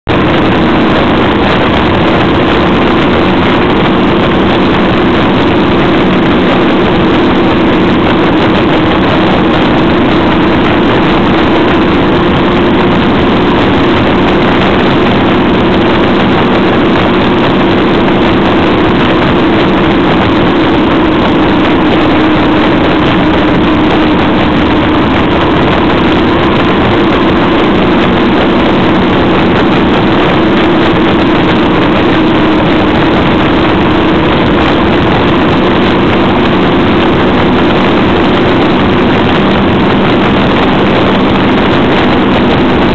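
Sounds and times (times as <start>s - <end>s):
motorcycle engine running: 0.0s - 42.9s
wind rush on microphone: 0.0s - 42.9s.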